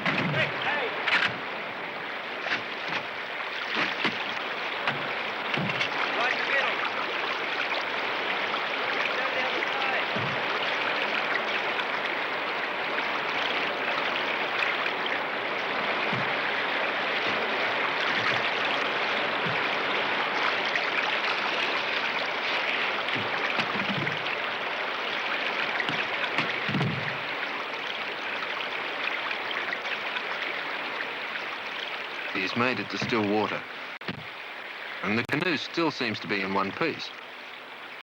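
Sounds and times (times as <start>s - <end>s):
white-water rapid rushing: 0.0s - 37.5s
faint low thumps: 10.1s - 10.6s, 16.0s - 20.1s.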